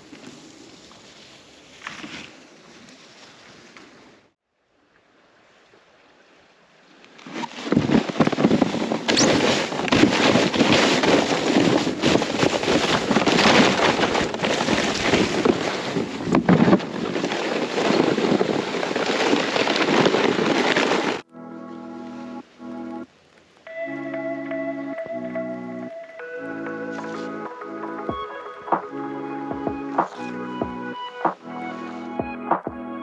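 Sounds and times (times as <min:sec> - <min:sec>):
water sounds from kayak: 0:04.0 - 0:21.4
wind rushing over microphone: 0:07.7 - 0:21.2.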